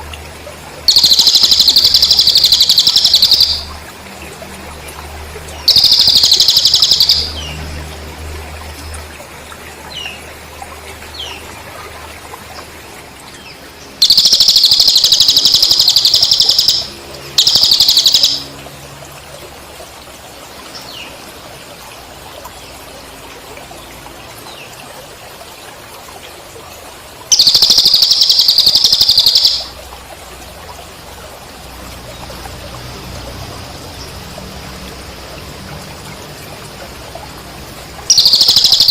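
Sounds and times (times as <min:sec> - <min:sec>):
buzzy pulsed bird trilling: 0:00.9 - 0:03.8, 0:05.7 - 0:07.6, 0:14.0 - 0:18.6, 0:27.3 - 0:29.8, 0:38.1 - 0:38.9
crickets chirping: 0:00.9 - 0:04.0, 0:05.7 - 0:07.6, 0:14.0 - 0:18.6, 0:27.3 - 0:29.7, 0:30.8 - 0:38.9.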